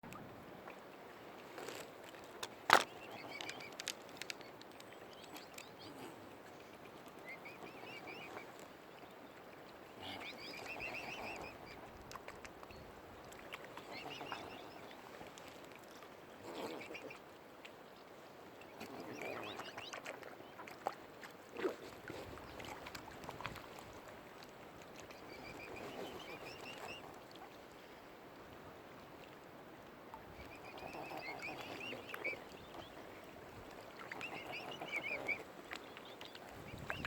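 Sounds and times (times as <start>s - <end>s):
swan cygnets peeping: 2.7s - 6.2s, 7.2s - 9.1s, 9.9s - 12.0s, 13.6s - 15.0s, 16.5s - 17.2s, 18.7s - 20.6s, 25.0s - 27.2s, 30.2s - 37.0s.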